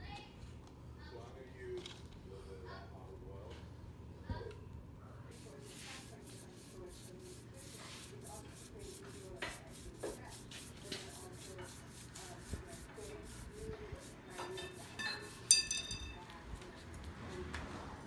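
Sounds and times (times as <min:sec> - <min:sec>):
foam brush rubbing on wood: 0:05.3 - 0:15.5.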